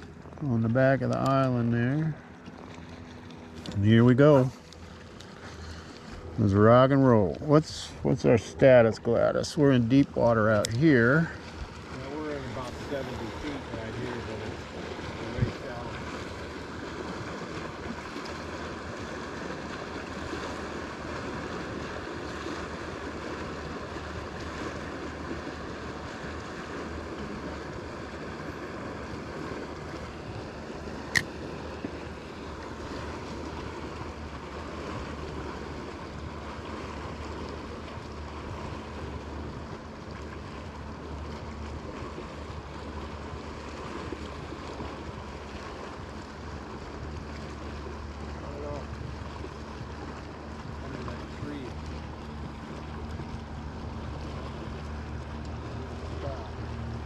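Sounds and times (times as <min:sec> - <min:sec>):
lake water around boat: 0:00.0 - 0:57.0
sharp click: 0:31.1 - 0:31.3.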